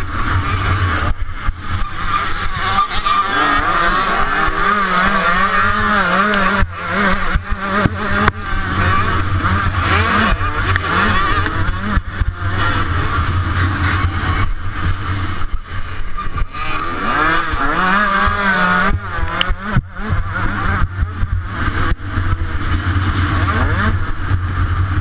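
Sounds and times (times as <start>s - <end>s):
motocross bike engine revving: 0.0s - 25.0s
steady low rumble: 4.1s - 25.0s.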